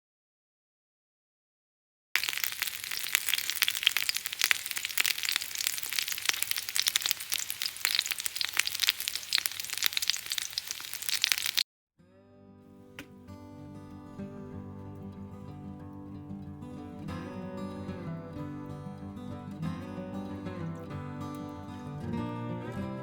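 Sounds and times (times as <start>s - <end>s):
dumplings sizzling in a pan: 2.2s - 11.6s.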